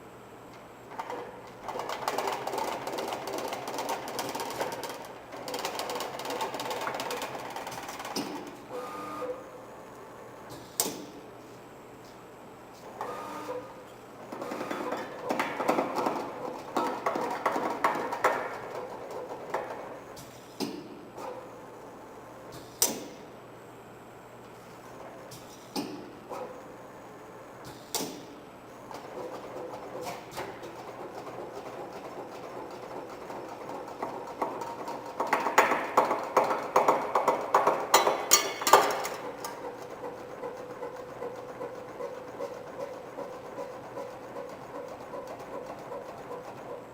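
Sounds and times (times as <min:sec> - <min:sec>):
faint steady machine hum: 0:00.0 - 0:46.9.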